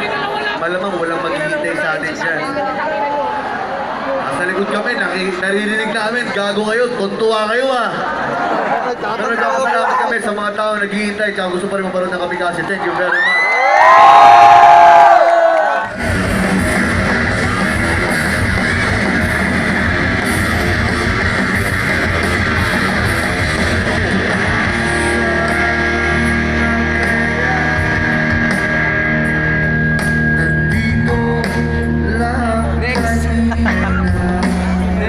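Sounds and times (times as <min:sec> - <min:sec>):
loud rock music: 0:15.8 - 0:35.0.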